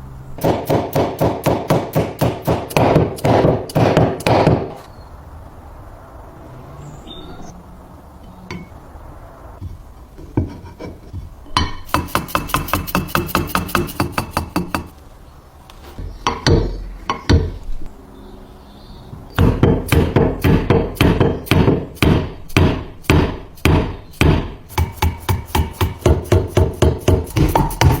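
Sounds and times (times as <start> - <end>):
rapid sharp taps: 24.8 - 28.0.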